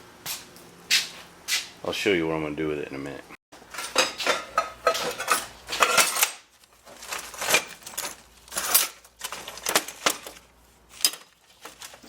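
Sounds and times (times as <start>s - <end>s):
metal objects clinking: 3.7s - 12.0s.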